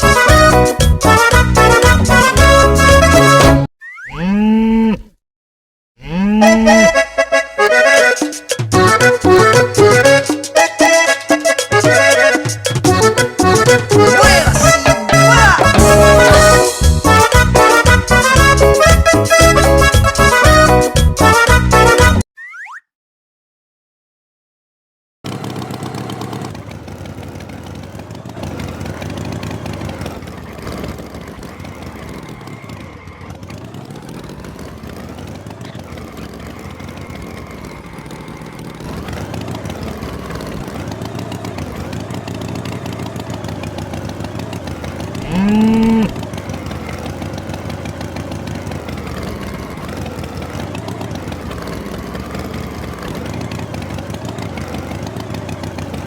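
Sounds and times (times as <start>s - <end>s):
tractor engine running: 0.0s - 3.7s, 6.4s - 22.2s, 25.2s - 56.0s
bull mooing: 4.1s - 5.1s, 6.0s - 7.0s, 45.2s - 46.2s.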